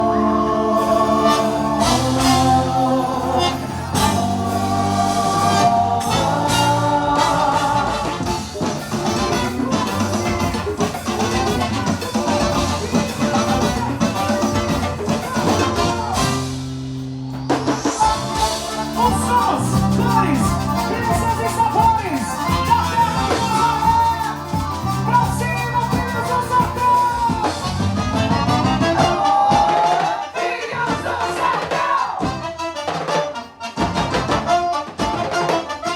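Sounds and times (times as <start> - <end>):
person singing: 0.0 - 16.5, 17.8 - 32.4
sliding melodic lead line: 0.0 - 17.0, 18.0 - 29.2
band playing music: 0.0 - 35.9
drums: 0.0 - 35.9.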